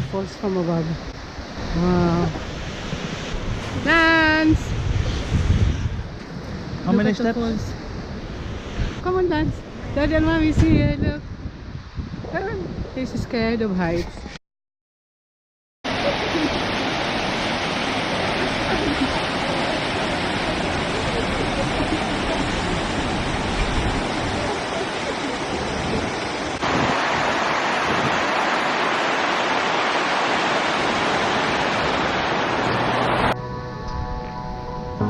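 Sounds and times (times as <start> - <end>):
waterfall rushing: 15.9 - 33.4.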